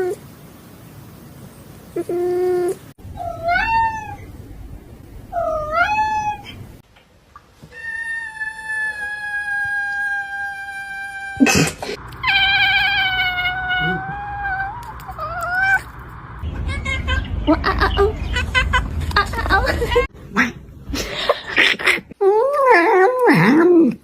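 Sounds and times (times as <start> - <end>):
cat meowing: 2.0 - 4.2, 5.3 - 6.6, 12.2 - 15.9.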